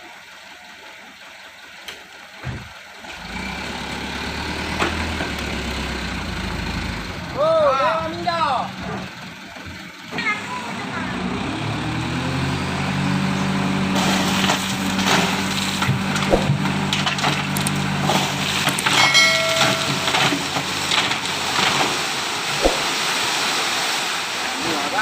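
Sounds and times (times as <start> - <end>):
dump truck engine running hard: 0.1 - 24.8
gravel sliding and rattling: 13.9 - 25.0.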